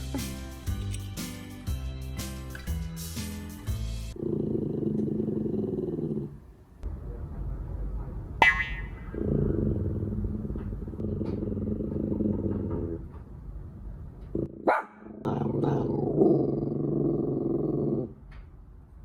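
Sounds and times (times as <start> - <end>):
dog growling: 4.2 - 6.5, 9.2 - 13.0, 14.3 - 18.2
dog yapping: 14.6 - 15.0.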